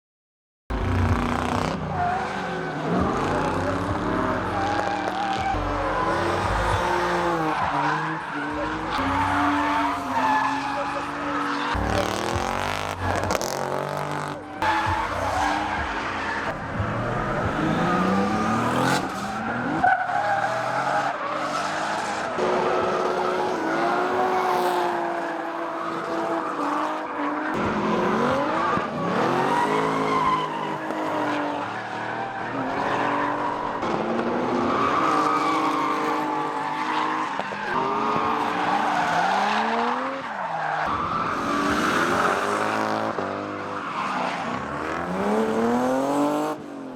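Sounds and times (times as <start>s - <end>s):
car engines revving: 0.7s - 46.9s
tyres squealing: 1.9s - 21.8s.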